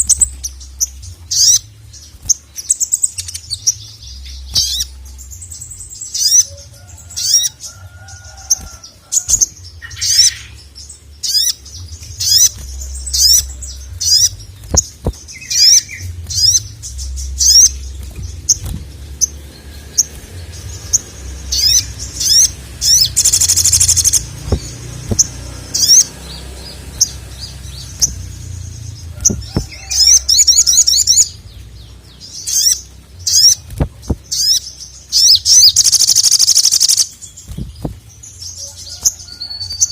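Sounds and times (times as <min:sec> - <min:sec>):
bird chirping song: 0:00.0 - 0:39.9
buzzy bird trill: 0:00.0 - 0:39.9.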